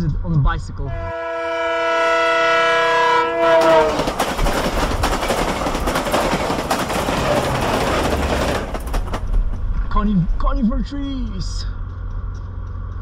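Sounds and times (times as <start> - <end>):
train horn chord: 0.9 - 4.2.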